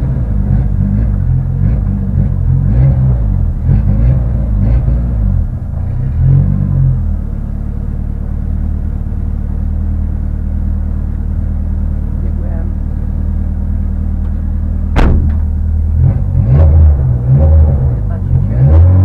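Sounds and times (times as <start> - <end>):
car engine revving and idling: 0.0 - 19.0.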